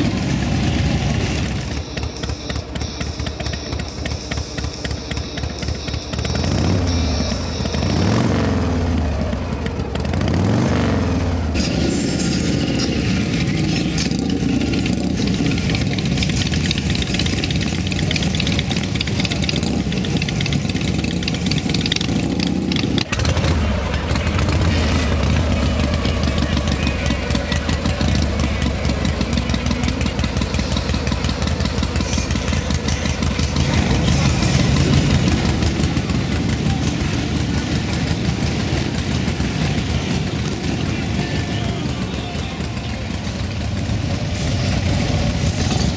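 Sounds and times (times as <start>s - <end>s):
motorcycle engines idling: 0.0s - 45.9s
voices in background: 11.4s - 45.9s.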